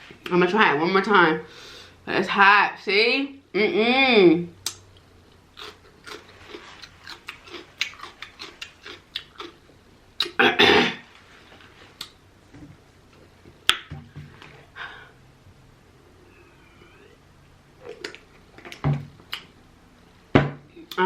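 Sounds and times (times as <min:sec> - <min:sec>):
person chewing with smacking clicks: 0:04.6 - 0:09.6, 0:10.2 - 0:10.4, 0:17.8 - 0:19.5.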